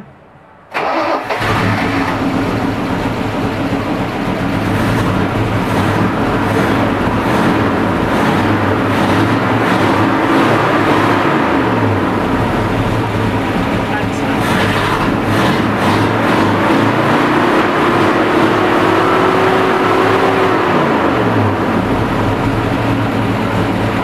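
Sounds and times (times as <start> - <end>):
car engine running: 1.2 - 24.0.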